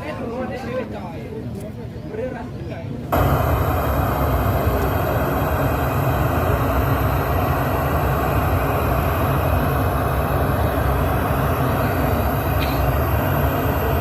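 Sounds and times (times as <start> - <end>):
bass-heavy rumbling from speakers: 3.2 - 14.0.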